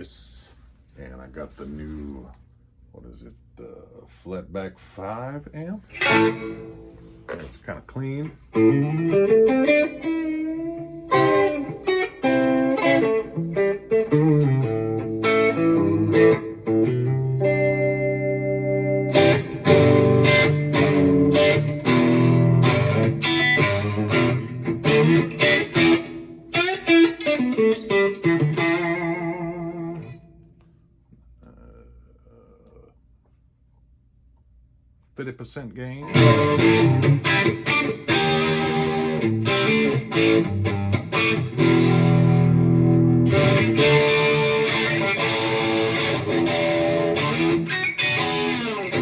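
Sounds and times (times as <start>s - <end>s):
clean electric guitar: 5.9s - 7.6s, 8.2s - 30.8s, 36.0s - 49.0s.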